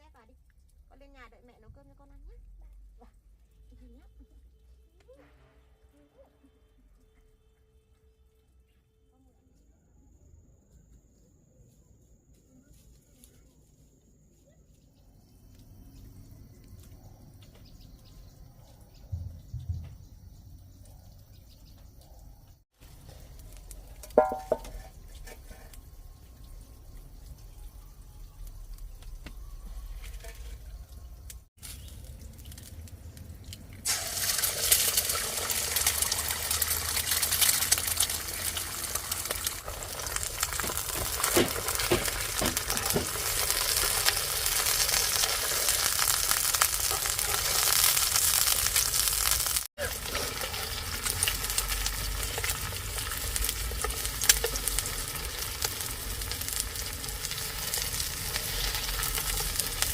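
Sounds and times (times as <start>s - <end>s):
food sizzling in a pan: 22.8s - 31.2s, 33.8s - 59.9s.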